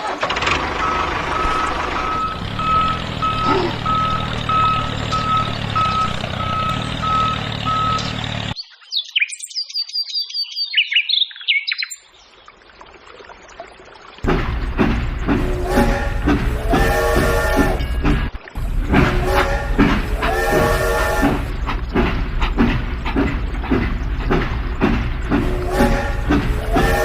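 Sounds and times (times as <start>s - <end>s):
reversing beeper: 0.6s - 8.5s
birds chirping: 0.9s - 12.4s
motor hum: 18.6s - 27.0s.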